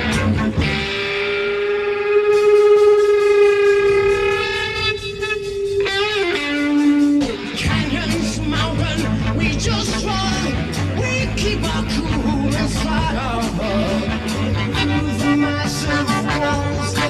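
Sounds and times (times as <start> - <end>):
psychedelic rock band: 0.0 - 17.0
held note sliding down in pitch: 0.6 - 7.2.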